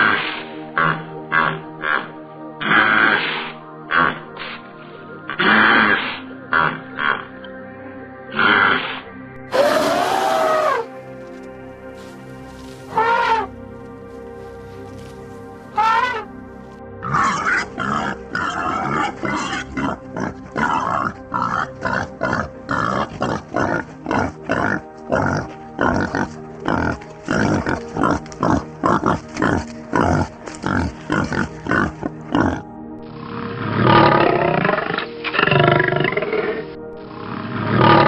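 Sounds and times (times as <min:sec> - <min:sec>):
animal grunting: 0:00.0 - 0:04.6, 0:05.3 - 0:07.4, 0:08.3 - 0:10.9, 0:12.0 - 0:16.4, 0:17.0 - 0:38.0
background music: 0:00.0 - 0:38.0
longer louder animal call: 0:08.3 - 0:11.0, 0:12.0 - 0:13.6, 0:14.4 - 0:16.4, 0:17.0 - 0:38.0.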